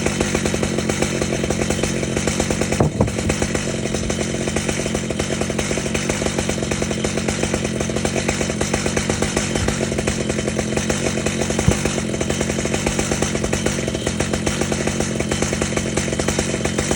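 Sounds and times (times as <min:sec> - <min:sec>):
chainsaw cutting log: 0:00.0 - 0:16.9
sharp knock: 0:02.8 - 0:03.4, 0:11.6 - 0:12.0.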